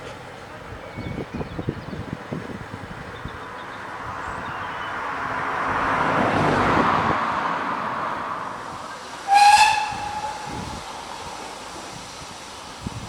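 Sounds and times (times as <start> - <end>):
steam locomotive hissing: 7.9 - 13.0
steam whistle blast: 9.2 - 10.8.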